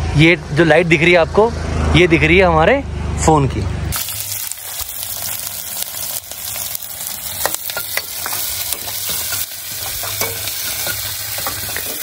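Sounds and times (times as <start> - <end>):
onion and tomato sizzling in oil: 3.9 - 12.0
steel ladle scraping a pot: 7.4 - 12.0.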